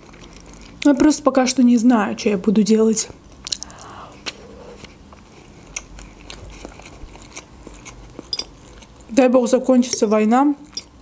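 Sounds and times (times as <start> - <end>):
chewing food: 0.0 - 1.1, 3.3 - 9.2
wet mouth clicks: 3.4 - 4.4
fork clinking in bowl: 8.3 - 8.5.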